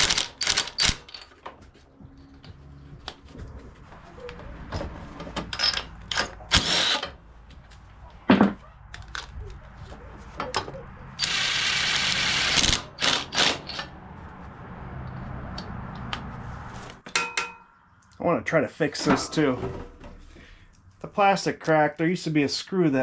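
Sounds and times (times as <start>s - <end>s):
tools and parts clicking: 0.0s - 1.6s, 5.4s - 7.8s.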